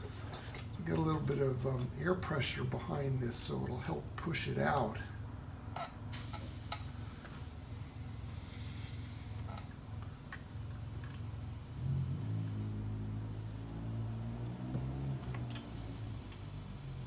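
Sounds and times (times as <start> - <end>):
air hissing: 6.1 - 17.0.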